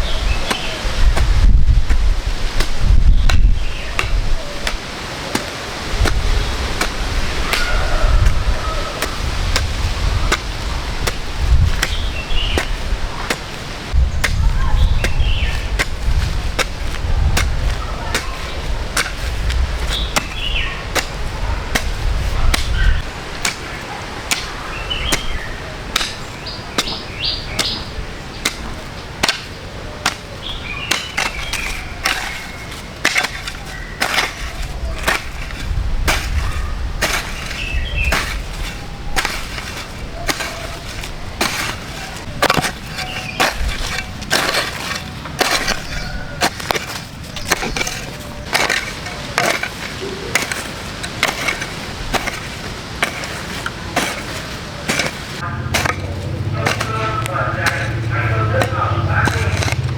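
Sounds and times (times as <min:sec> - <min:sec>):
sharp knocks and clattering: 0:30.9 - 0:59.9.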